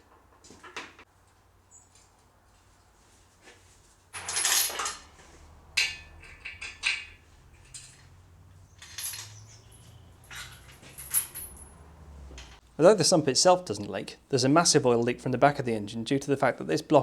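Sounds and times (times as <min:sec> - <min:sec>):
metal parts clinking and clattering: 0:04.1 - 0:12.6.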